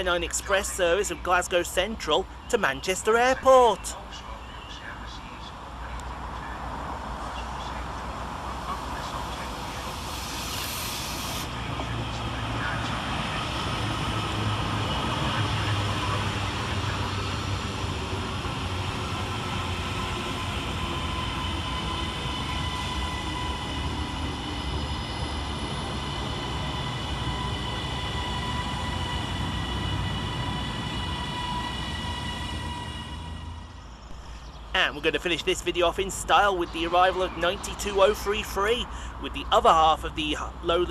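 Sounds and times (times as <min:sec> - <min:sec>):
train rumble: 0:00.0 - 0:40.9
brief hiss: 0:09.7 - 0:11.5.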